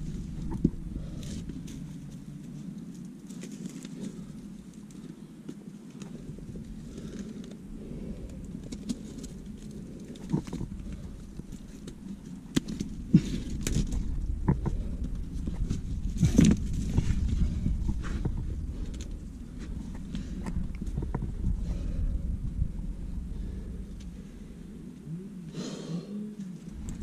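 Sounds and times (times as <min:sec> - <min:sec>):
wind rumble on microphone: 0:00.0 - 0:25.5, 0:26.3 - 0:27.0
climbing shoes scraping rock: 0:08.7 - 0:22.0.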